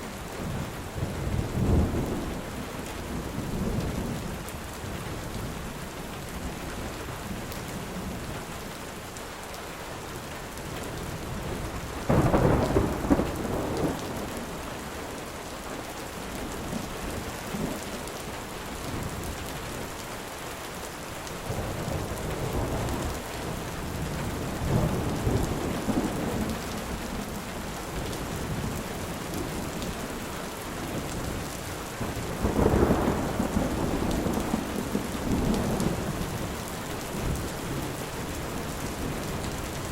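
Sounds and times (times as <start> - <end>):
steady rain falling: 0.0 - 39.9
thunder crack and rumble: 11.1 - 15.3, 21.5 - 30.1, 30.8 - 39.9.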